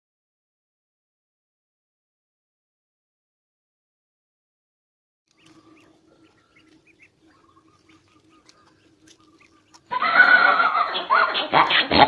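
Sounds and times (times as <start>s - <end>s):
faint bird chirps: 5.3s - 10.0s
low steady hum: 5.3s - 11.3s
horse neigh: 9.9s - 11.9s.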